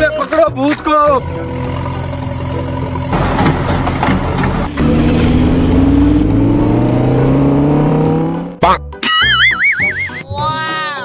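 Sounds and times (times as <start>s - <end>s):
engine accelerating: 1.2s - 8.6s
quick rising sweep: 4.6s - 8.6s.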